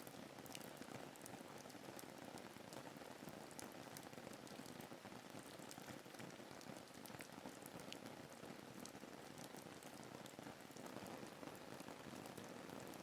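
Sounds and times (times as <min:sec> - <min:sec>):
faint rain hiss: 0:00.0 - 0:13.0.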